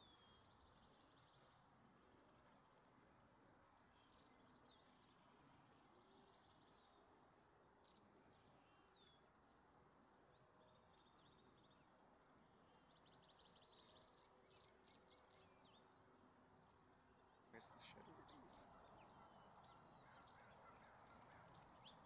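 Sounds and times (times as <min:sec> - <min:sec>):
bird chirping: 0:00.0 - 0:01.7, 0:10.6 - 0:22.0.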